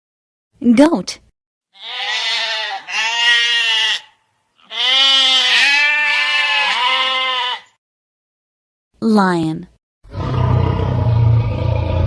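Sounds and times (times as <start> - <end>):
goat bleating: 1.8 - 7.8.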